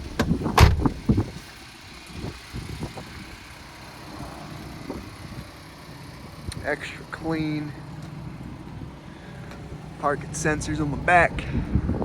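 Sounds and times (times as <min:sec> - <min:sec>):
truck engine idling: 0:00.0 - 0:12.0
sharp clunks and knocks: 0:00.1 - 0:01.0
heavy thump: 0:00.2 - 0:00.9.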